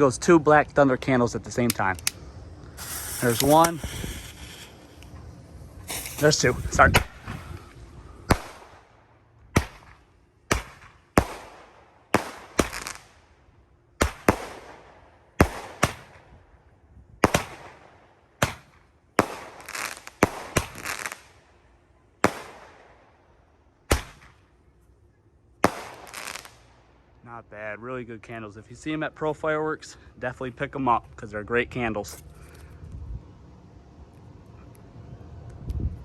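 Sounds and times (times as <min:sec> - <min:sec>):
roman candle pops with hiss: 0:01.6 - 0:07.7, 0:12.2 - 0:13.1.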